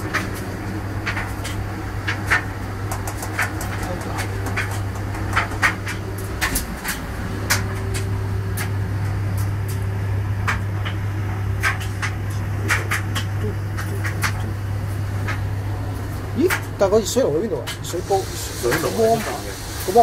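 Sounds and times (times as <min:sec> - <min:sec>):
washing machine humming: 0:00.0 - 0:20.0
sharp irregular clicks: 0:01.0 - 0:09.8.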